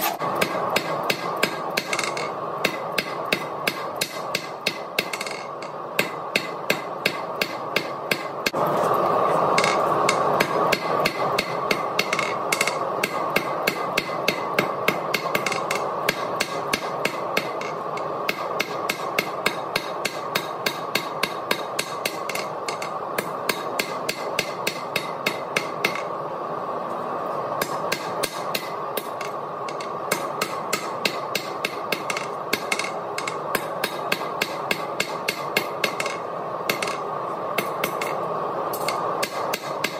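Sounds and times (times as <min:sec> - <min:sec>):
hammer striking steel on anvil: 0:00.0 - 0:08.6, 0:09.6 - 0:26.1, 0:27.6 - 0:37.0, 0:37.6 - 0:39.9.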